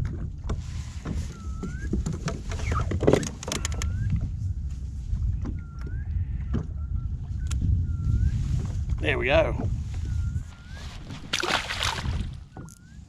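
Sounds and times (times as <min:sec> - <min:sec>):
wind: 0:00.0 - 0:13.0
water lapping: 0:10.4 - 0:12.8.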